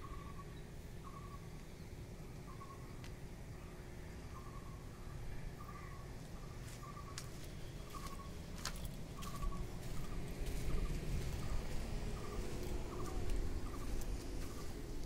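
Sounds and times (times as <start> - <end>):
bird calling: 0.0 - 14.8
wind rumble: 7.9 - 15.0.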